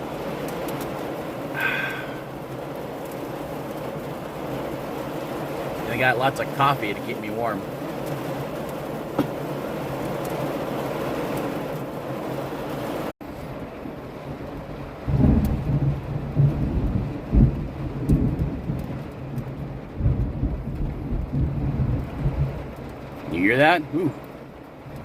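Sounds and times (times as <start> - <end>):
heavy rain: 0.0 - 25.0
thunder rumbling: 13.6 - 23.4.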